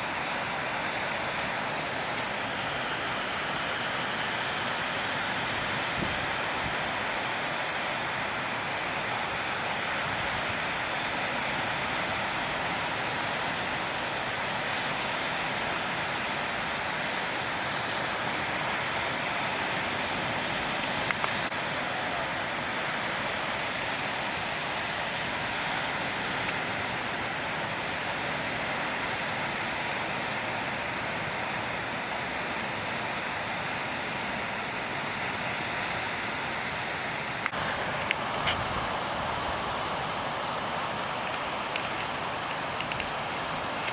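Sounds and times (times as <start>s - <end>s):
ocean surf breaking: 0.0s - 43.9s
faint click: 41.2s - 43.2s.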